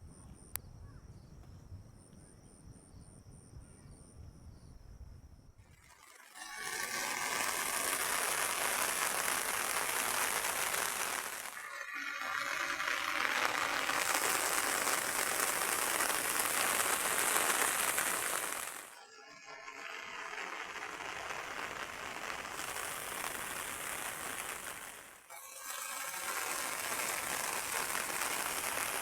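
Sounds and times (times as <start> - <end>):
heavy rain falling: 6.8 - 19.0.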